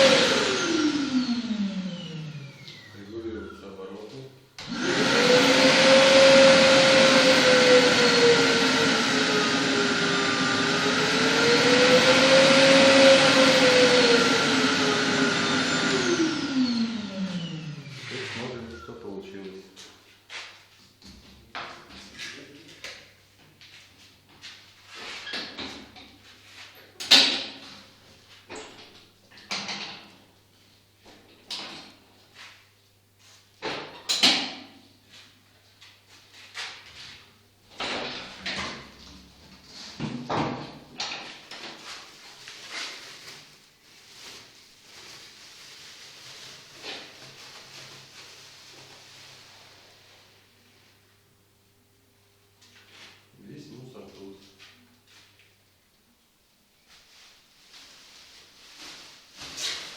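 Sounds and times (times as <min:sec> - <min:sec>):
vacuum motor whining: 0:00.0 - 0:03.1, 0:04.6 - 0:18.8.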